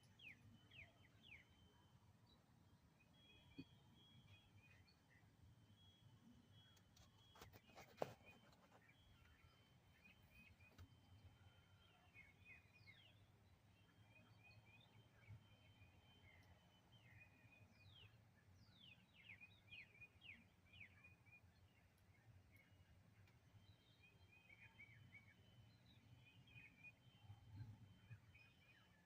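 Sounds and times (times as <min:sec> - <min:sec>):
faint birdsong: 0:00.0 - 0:29.0.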